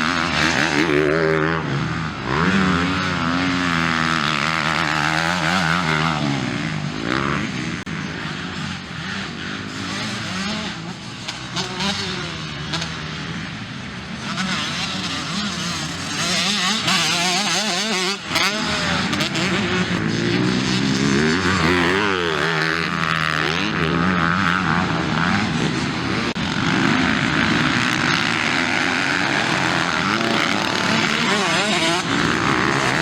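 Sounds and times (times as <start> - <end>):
motocross bike engines revving: 0.0 - 33.0.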